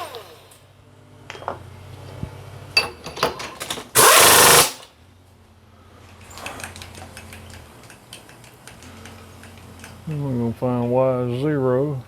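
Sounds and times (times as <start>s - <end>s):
hissing rattling burst: 4.0s - 4.8s.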